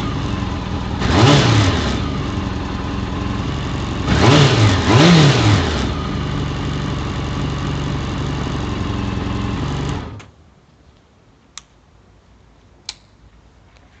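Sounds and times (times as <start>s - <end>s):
motorcycle engine idling: 0.0s - 10.2s
short clicks: 12.8s - 13.2s.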